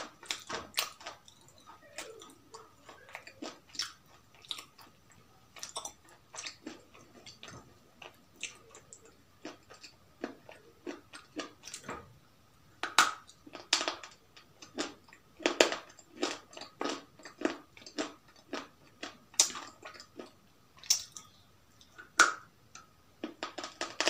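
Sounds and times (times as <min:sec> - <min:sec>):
crunchy biting and chewing: 0:00.0 - 0:11.9.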